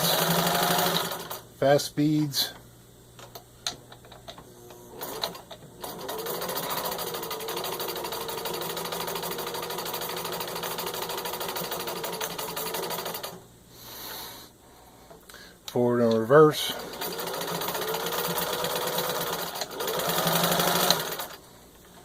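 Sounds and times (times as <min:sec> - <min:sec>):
sewing machine stitching: 0:00.0 - 0:01.4, 0:05.0 - 0:13.4, 0:16.8 - 0:21.4.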